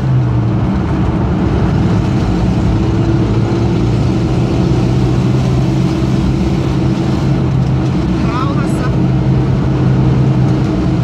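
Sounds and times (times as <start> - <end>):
car engine running: 0.0 - 11.0
road noise rushing: 0.0 - 11.0.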